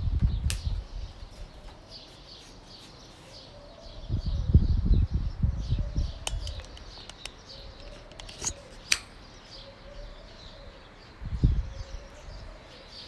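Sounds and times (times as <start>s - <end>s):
low rumbling on microphone: 0.0s - 1.3s, 3.9s - 6.5s, 11.2s - 12.6s
birds chirping: 0.0s - 13.0s
sharp clicks: 6.2s - 9.2s.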